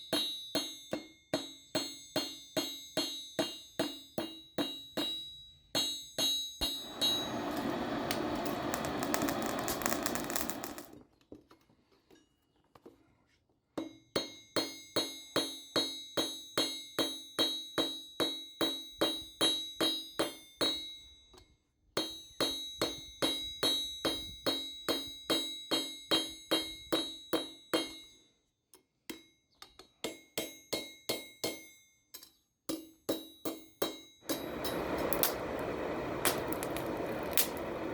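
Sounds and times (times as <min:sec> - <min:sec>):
hammer striking iron on anvil: 0:00.1 - 0:10.9, 0:22.0 - 0:28.0, 0:30.0 - 0:37.7
anvil ringing: 0:06.8 - 0:07.7, 0:34.3 - 0:35.4.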